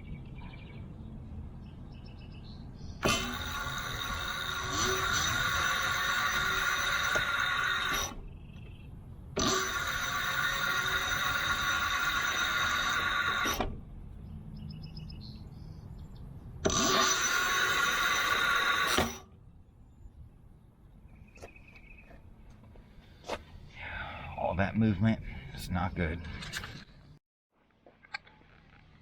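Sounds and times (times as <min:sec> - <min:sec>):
e-bike hub motor whining: 0:03.0 - 0:08.8, 0:09.4 - 0:13.8, 0:16.6 - 0:19.3.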